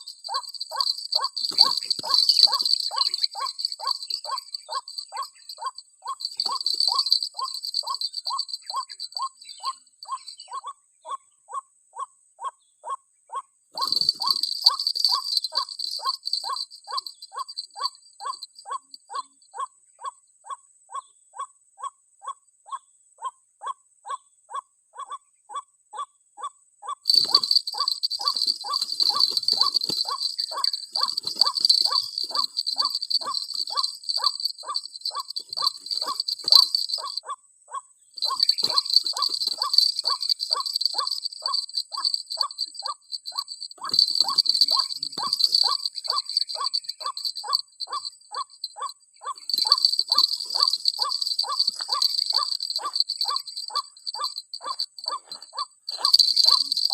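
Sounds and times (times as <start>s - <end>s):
high insect buzz: 0.0s - 9.1s, 13.8s - 17.7s, 27.1s - 37.2s, 38.2s - 48.7s, 49.4s - 56.9s.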